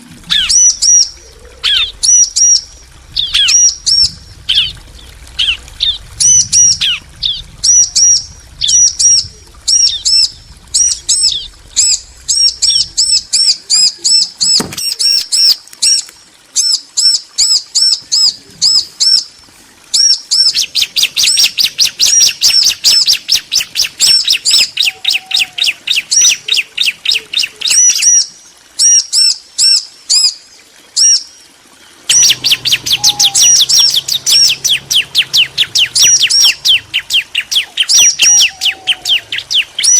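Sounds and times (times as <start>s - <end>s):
birds rapid high chirps: 32.1s - 39.9s.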